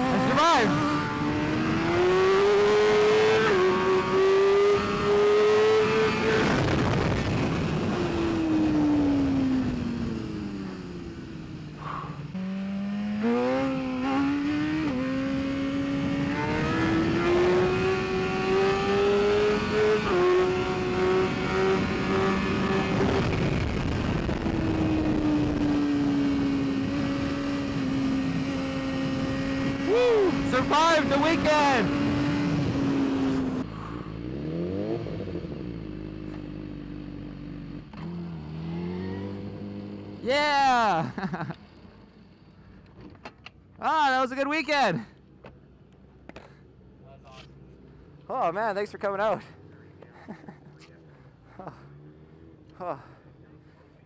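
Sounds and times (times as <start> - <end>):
rushing wind: 0.0 - 12.5, 13.2 - 36.7
motorcycle engine shifting gears: 0.0 - 40.2.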